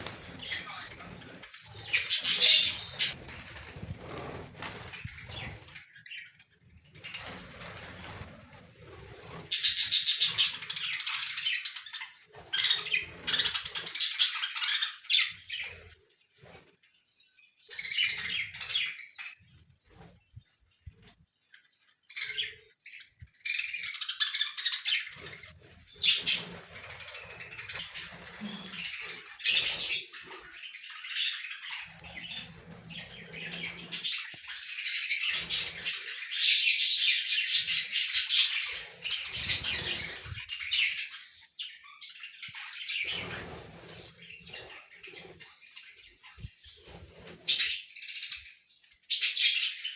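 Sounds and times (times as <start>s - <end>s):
budgerigars chattering and chirping: 0.0s - 3.2s, 9.3s - 15.8s, 22.2s - 41.2s.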